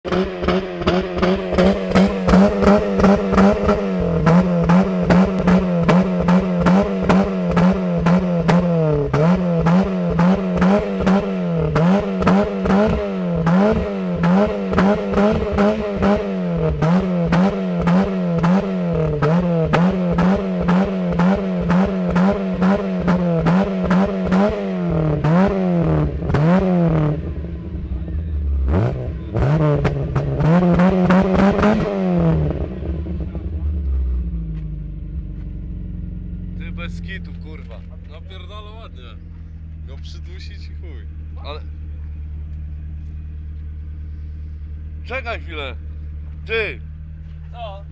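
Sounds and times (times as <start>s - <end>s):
exhaust backfire pops and crackles: 0.0s - 27.3s, 28.7s - 38.3s
car engine revving: 0.0s - 47.9s.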